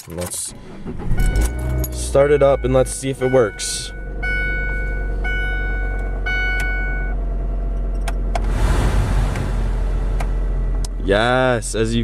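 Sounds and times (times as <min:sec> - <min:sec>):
car engine cranking and starting: 0:00.0 - 0:11.6
steady low hum: 0:00.6 - 0:12.0
dashboard warning chime: 0:01.2 - 0:07.2.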